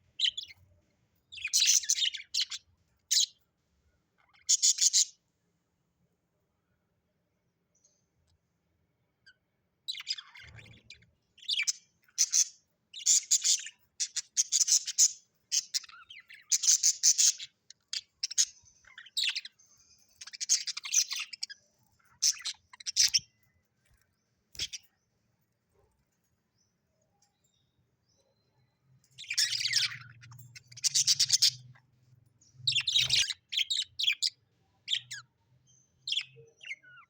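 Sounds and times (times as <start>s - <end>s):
parrot chirping and squawking: 1.3s - 3.4s, 4.2s - 5.2s, 9.9s - 19.6s, 20.2s - 23.4s, 24.5s - 24.9s, 29.2s - 32.0s, 32.6s - 35.2s.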